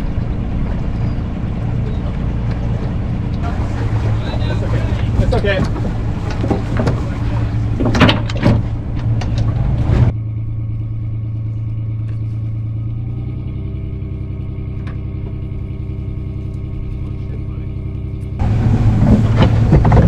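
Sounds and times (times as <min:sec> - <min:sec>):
wind noise: 0:00.0 - 0:10.1, 0:18.2 - 0:20.0
boat engine drone: 0:00.0 - 0:20.0
loud knocks: 0:03.4 - 0:10.1, 0:18.4 - 0:20.0.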